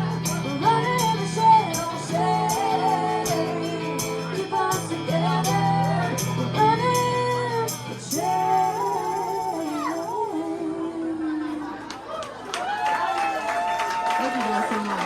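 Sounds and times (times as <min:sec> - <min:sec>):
rock band playing: 0:00.0 - 0:08.2.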